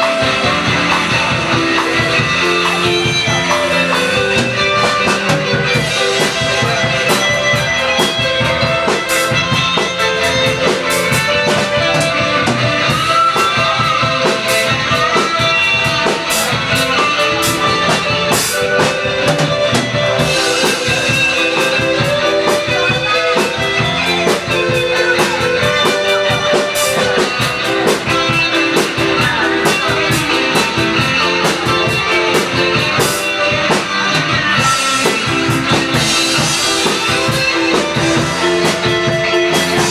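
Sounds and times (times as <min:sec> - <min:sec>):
drum kit beat: 0:00.0 - 0:39.9
guitar: 0:00.0 - 0:39.9.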